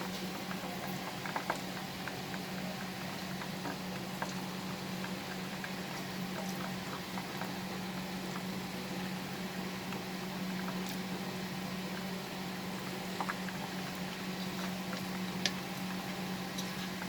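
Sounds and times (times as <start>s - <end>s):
chicken deep-frying in oil: 0.0s - 17.0s
oil crackling and popping: 11.9s - 17.0s.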